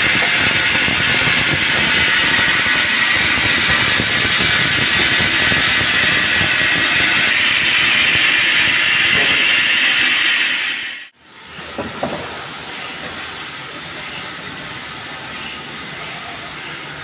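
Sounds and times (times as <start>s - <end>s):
band saw cutting log: 0.0s - 11.1s.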